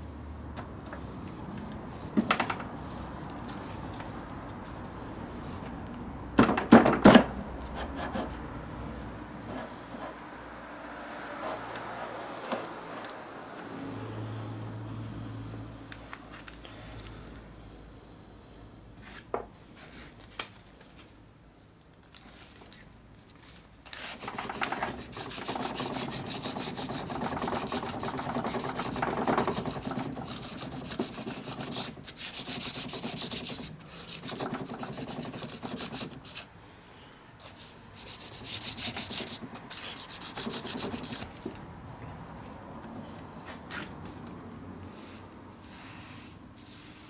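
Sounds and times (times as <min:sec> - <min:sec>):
scrubbing rust off metal: 0:24.1 - 0:36.5.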